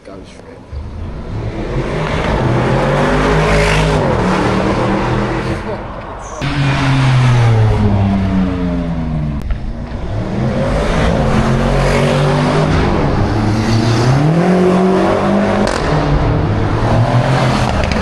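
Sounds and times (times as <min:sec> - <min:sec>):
car engine revving hard: 0:00.9 - 0:05.7, 0:06.4 - 0:18.0.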